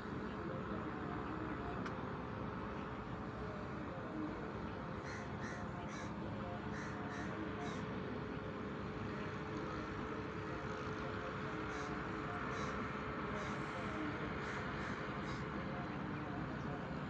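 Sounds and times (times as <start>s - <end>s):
steady background hum: 0.0s - 17.0s
bird calling: 4.8s - 7.9s, 11.5s - 16.3s.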